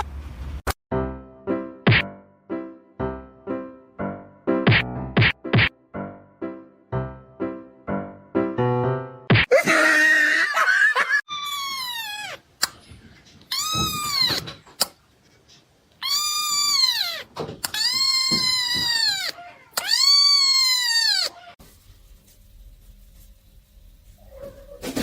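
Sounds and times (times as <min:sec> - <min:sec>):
cat meowing: 0:11.3 - 0:12.4, 0:13.5 - 0:14.6, 0:16.0 - 0:21.6.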